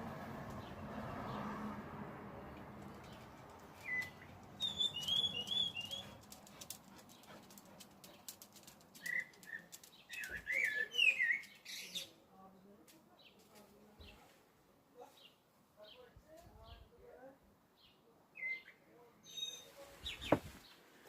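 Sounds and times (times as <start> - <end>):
songbird whistling and warbling: 3.8 - 6.2, 18.4 - 20.4.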